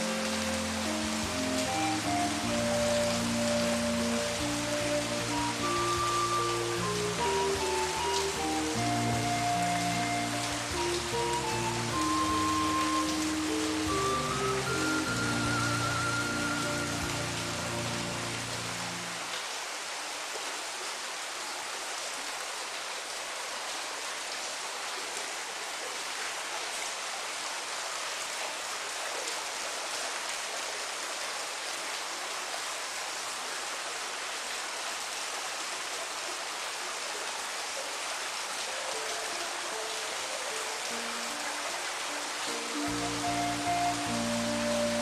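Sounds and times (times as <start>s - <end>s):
flute music: 0.0s - 19.2s, 38.7s - 45.0s
steady rain hiss: 0.0s - 45.0s.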